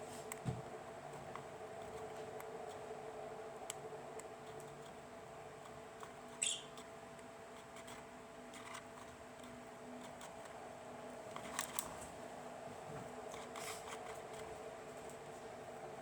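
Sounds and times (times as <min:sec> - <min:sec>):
bird chirp: 0:06.4 - 0:06.8.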